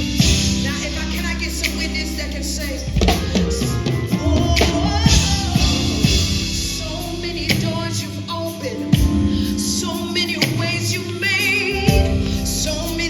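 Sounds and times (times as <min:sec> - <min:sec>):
band with drum kit: 0:00.0 - 0:13.0.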